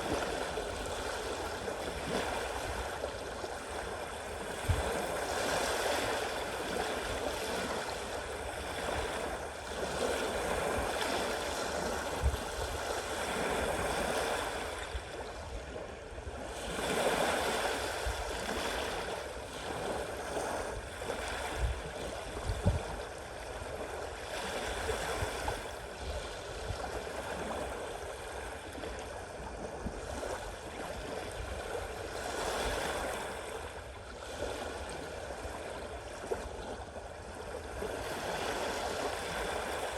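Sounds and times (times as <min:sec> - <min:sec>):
sea waves washing in: 0:16.5 - 0:39.9.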